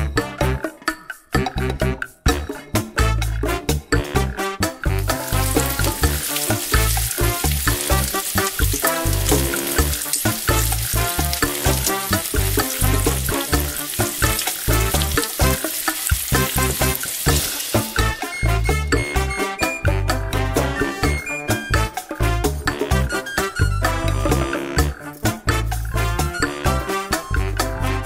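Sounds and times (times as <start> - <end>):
music with beat and bass: 0.0 - 28.0
food sizzling in a pan: 5.2 - 18.3.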